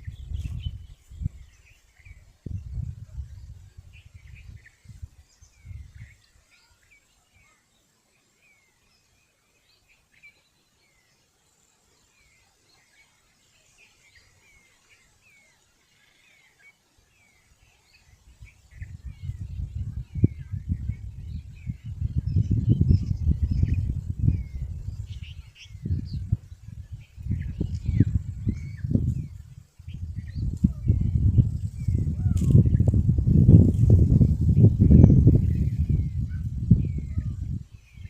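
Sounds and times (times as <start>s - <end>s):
low rumble on microphone: 0.0s - 6.2s, 18.1s - 38.0s
small birds chirping: 0.0s - 38.0s.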